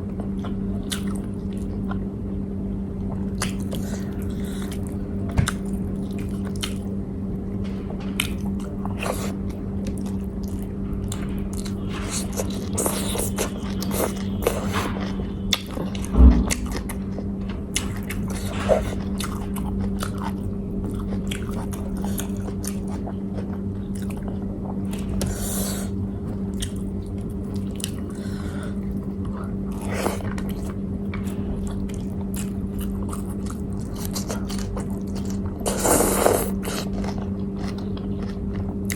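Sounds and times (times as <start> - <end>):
steady low hum: 0.0 - 38.9
person chewing food: 0.1 - 2.1, 3.0 - 7.0, 8.2 - 38.9
thump: 16.1 - 16.7.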